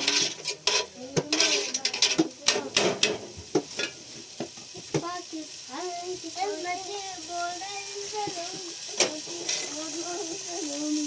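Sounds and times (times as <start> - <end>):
steady hiss: 0.0 - 11.0
children's voices: 0.8 - 3.2, 4.8 - 11.0.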